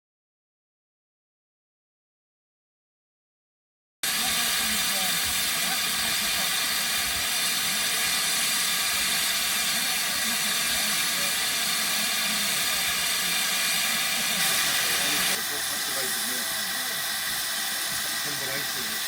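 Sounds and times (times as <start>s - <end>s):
steady hiss: 4.1s - 19.0s.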